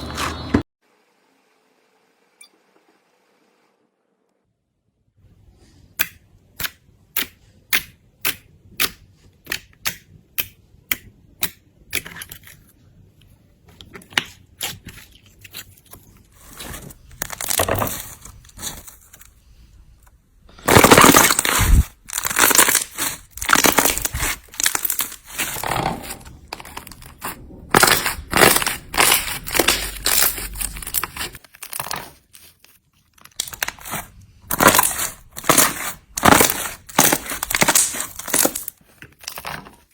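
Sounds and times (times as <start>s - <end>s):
slime crackling and crunching: 16.6s - 19.1s, 20.6s - 39.9s.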